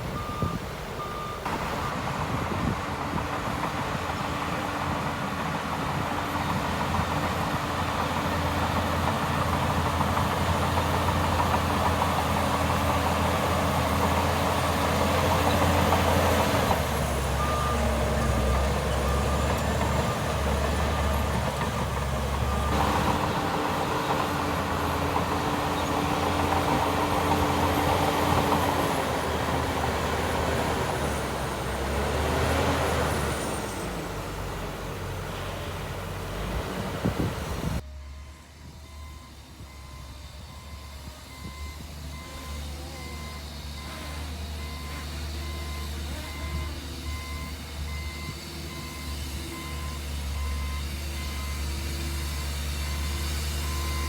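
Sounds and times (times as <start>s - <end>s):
diesel machinery engine running: 0.0s - 54.0s
reversing alarm beeping: 0.1s - 2.0s, 14.2s - 29.5s, 37.8s - 54.0s.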